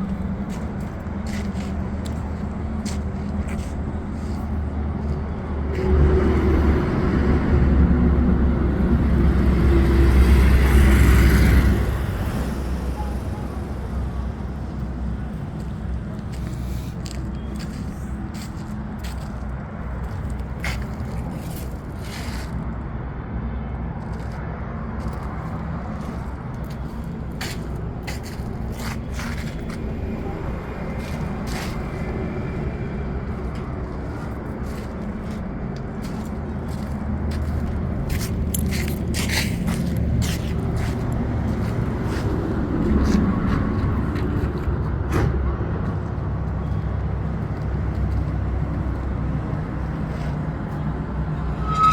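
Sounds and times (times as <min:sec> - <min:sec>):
steady low rumble: 0:24.6 - 0:51.9.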